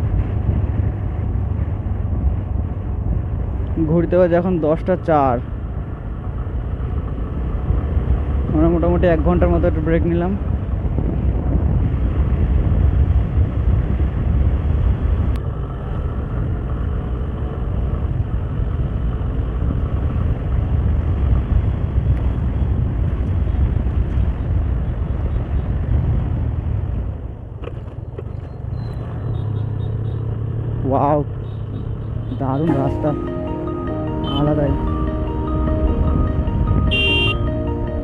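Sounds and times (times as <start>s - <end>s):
wind rushing over microphone: 0.0s - 3.9s, 10.2s - 27.6s
motorcycle engine rumble: 34.2s - 38.0s.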